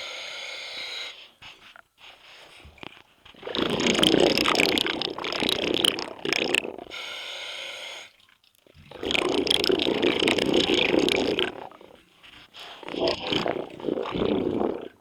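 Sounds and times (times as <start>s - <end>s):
diver breathing through regulator: 0.0s - 8.2s, 8.9s - 15.0s
exhaled bubbles rushing: 3.4s - 7.0s, 8.7s - 15.0s.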